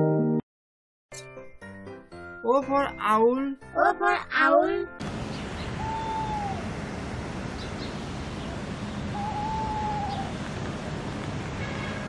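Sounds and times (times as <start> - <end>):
outdoor background hiss: 5.0 - 12.0
whistled bird call: 5.6 - 6.7, 9.1 - 10.4.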